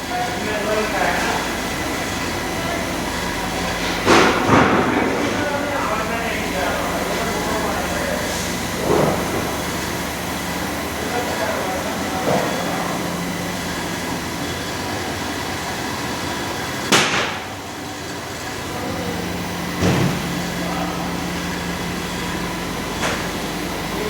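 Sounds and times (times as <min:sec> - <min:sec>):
sharp knocks: 0:16.9 - 0:17.5, 0:19.8 - 0:20.4.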